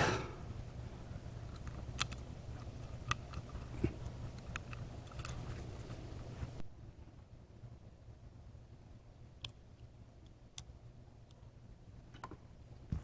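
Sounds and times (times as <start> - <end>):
low steady hum: 0.0 - 13.0
small parts clicking and tapping: 1.5 - 5.9.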